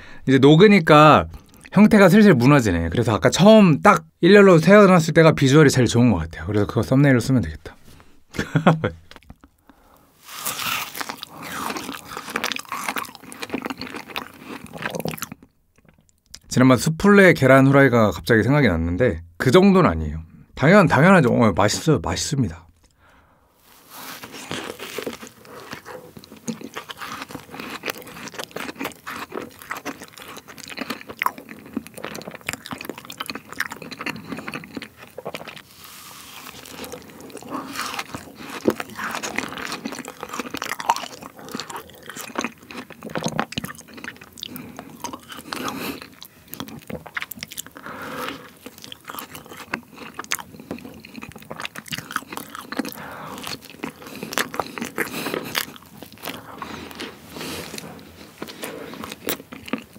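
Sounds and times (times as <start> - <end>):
biting and chewing: 10.2 - 16.5, 24.0 - 59.9.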